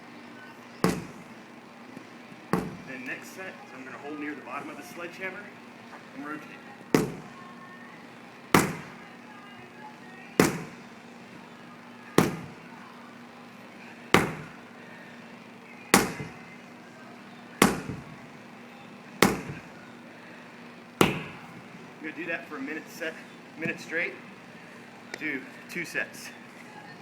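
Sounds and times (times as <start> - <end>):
sledgehammer striking tire: 0.9 - 1.3, 2.6 - 3.0, 7.0 - 7.3, 8.6 - 9.0, 10.4 - 10.8, 12.2 - 12.6, 14.2 - 14.6, 16.0 - 16.4, 17.6 - 18.1, 19.2 - 19.7, 21.0 - 21.5.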